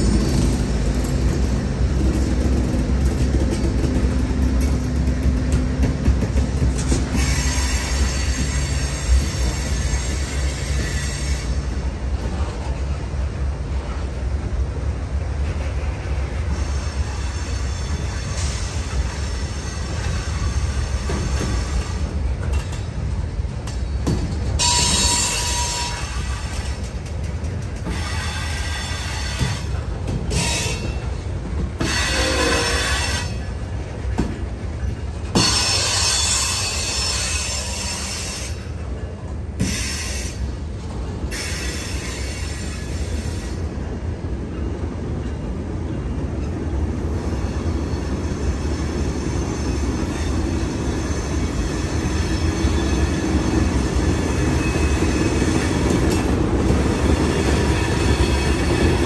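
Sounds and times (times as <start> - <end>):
freight train rumbling on rails: 0.0 - 59.0
train wheels squealing: 6.4 - 13.0, 15.5 - 59.0.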